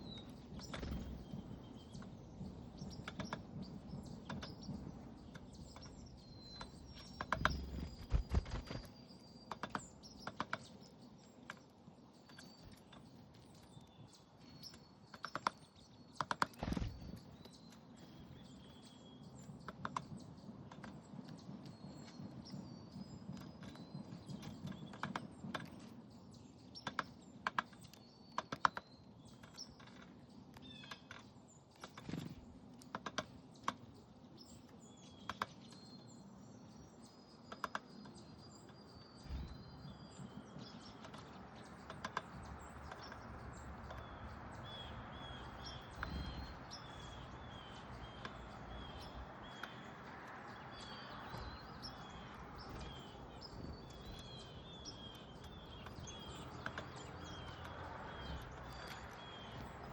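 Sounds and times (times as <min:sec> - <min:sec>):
birds chirping: 0:00.0 - 0:59.9
bills and feet tapping on feeder: 0:40.2 - 0:59.9.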